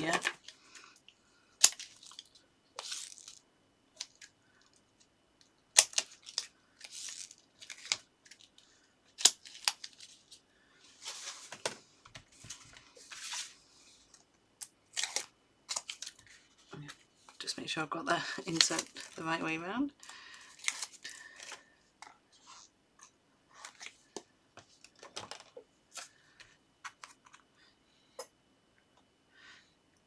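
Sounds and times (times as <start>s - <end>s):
paper rustling: 9.3s - 13.6s, 18.1s - 19.4s.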